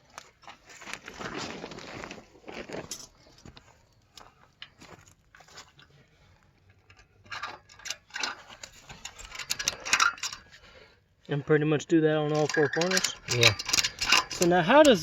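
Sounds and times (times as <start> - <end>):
shed cover rustling: 0.4 - 3.8.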